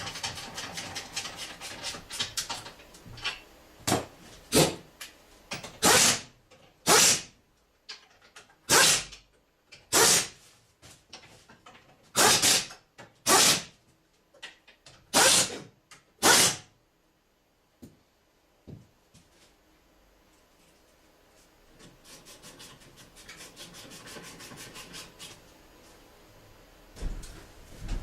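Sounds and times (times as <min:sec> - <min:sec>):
power tool bursts: 0:05.8 - 0:07.3, 0:08.7 - 0:09.1, 0:09.9 - 0:10.3, 0:12.2 - 0:13.7, 0:15.1 - 0:15.6.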